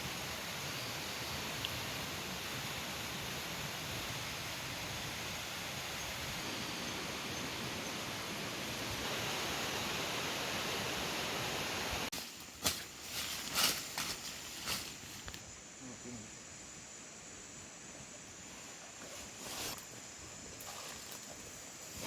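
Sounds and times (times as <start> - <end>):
steady rushing hiss: 0.0 - 22.0.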